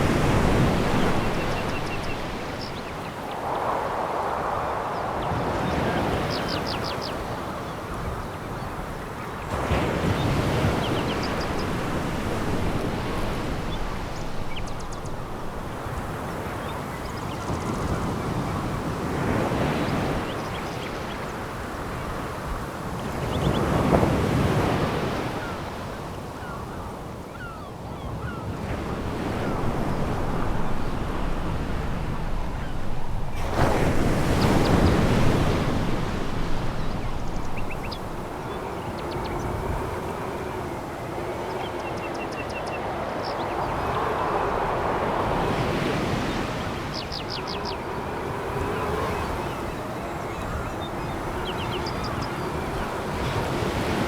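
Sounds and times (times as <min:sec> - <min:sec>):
waves on a pebble beach: 0:00.0 - 0:26.8, 0:28.2 - 0:54.0
sea waves on a pebble beach: 0:28.2 - 0:54.0.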